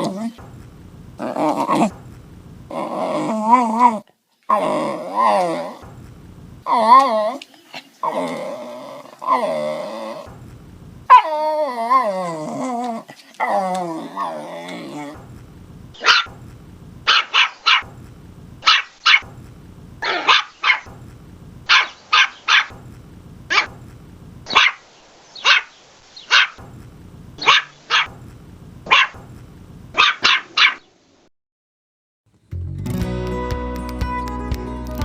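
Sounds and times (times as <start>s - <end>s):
small dog barking sharply: 16.0s - 16.3s, 17.1s - 17.9s, 18.6s - 19.3s, 20.0s - 20.9s, 21.7s - 22.8s, 23.5s - 23.8s, 24.5s - 24.8s, 25.4s - 25.7s, 26.3s - 26.6s, 27.4s - 28.2s, 28.9s - 29.2s, 30.0s - 30.8s.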